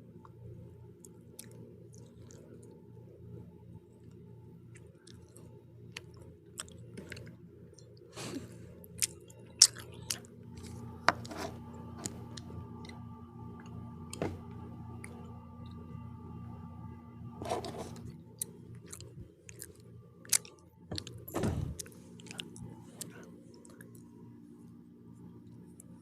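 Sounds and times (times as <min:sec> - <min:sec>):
faint steady hum: 0:00.0 - 0:26.0
person chewing pizza: 0:01.1 - 0:02.8, 0:04.7 - 0:08.0, 0:08.8 - 0:13.0, 0:17.4 - 0:24.1.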